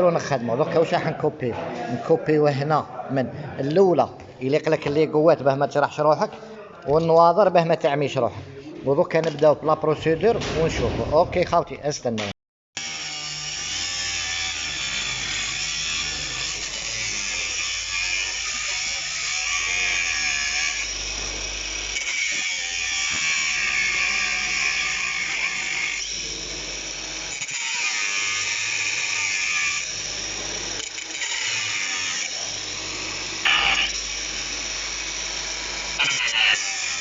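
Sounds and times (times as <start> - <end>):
power tool cutting metal whine: 12.8 - 37.0
sharp screeches: 33.4 - 34.0, 36.0 - 37.0.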